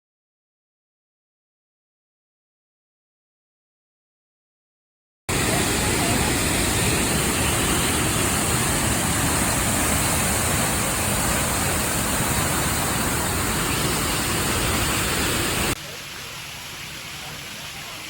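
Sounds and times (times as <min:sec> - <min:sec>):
waterfall roaring: 0:05.3 - 0:18.0.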